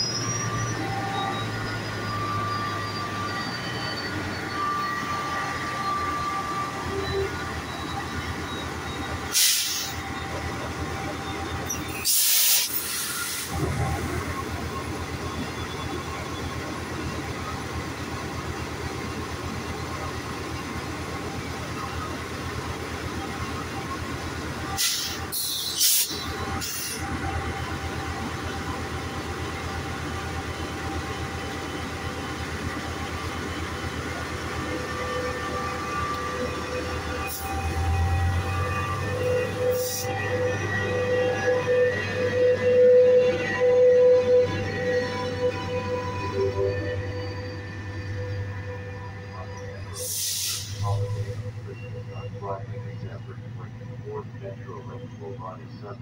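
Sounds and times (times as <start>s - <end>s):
diesel locomotive humming: 0.0s - 56.0s
air hisses: 12.0s - 13.6s, 50.0s - 50.8s.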